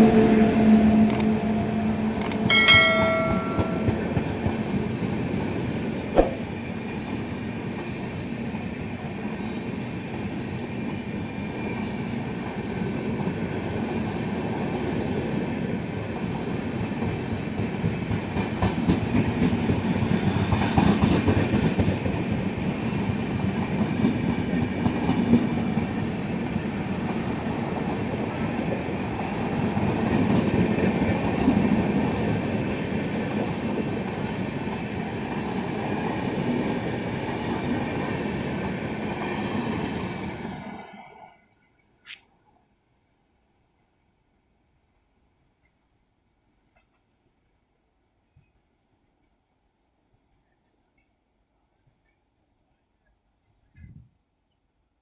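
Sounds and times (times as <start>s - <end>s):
train rumble: 0.0s - 40.8s
train wheels clicking over rail joints: 17.6s - 25.9s.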